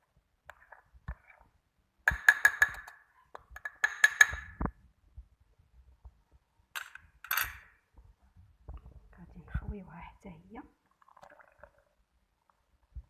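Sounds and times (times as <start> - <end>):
spoon clinking against glass: 6.8 - 7.7.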